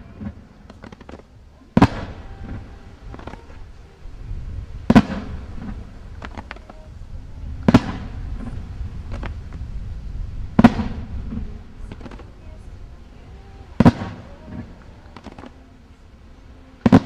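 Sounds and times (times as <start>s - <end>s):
firework pops and cracks: 0.0s - 3.6s, 4.9s - 6.8s, 7.6s - 9.7s, 10.6s - 12.4s, 13.8s - 15.6s
firework bangs: 0.0s - 15.8s, 16.4s - 17.0s.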